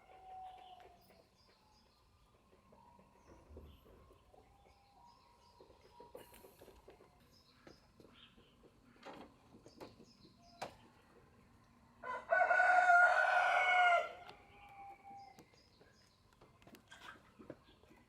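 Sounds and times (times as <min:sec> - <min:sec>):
rooster crowing: 0:12.0 - 0:14.2.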